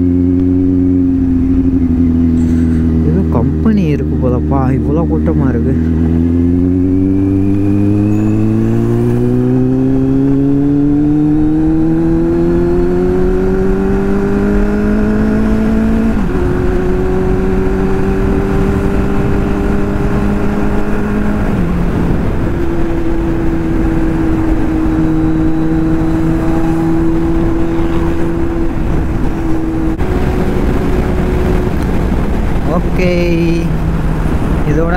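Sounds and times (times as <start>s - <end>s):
motorcycle engine accelerating: 0.0s - 34.9s
wind and road noise: 0.0s - 34.9s.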